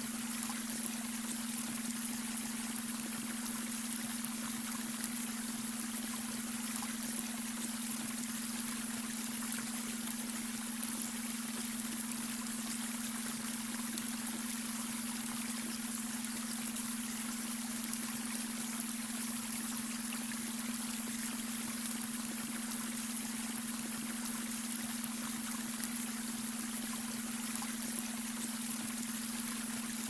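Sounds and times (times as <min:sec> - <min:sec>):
steady low hum tone: 0:00.0 - 0:30.0.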